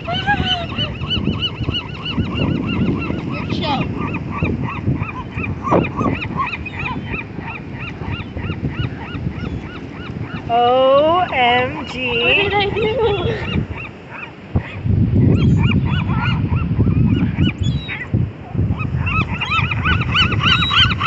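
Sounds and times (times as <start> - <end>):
flock of birds calling: 0.0 - 21.0.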